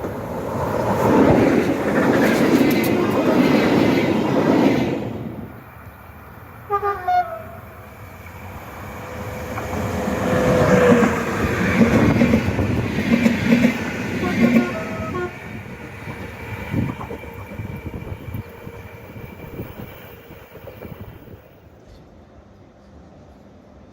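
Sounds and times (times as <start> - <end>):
train running on rails: 0.0 - 23.9
train horn blasts: 6.7 - 7.8, 14.2 - 15.6.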